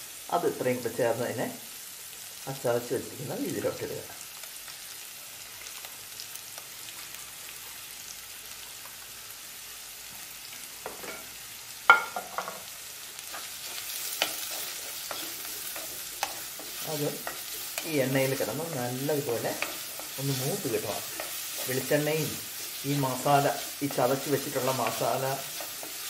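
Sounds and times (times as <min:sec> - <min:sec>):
food sizzling in oil: 0:00.0 - 0:26.0
wooden spatula scraping a pot: 0:13.3 - 0:26.0.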